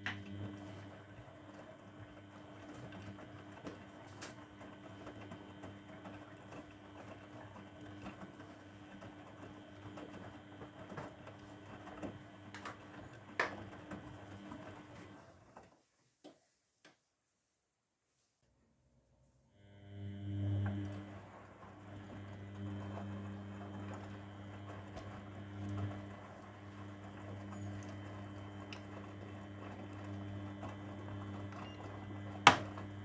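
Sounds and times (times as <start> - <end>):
washing machine motor hum: 0.0 - 15.8, 19.6 - 33.0
laundry knocking in drum: 32.4 - 32.8.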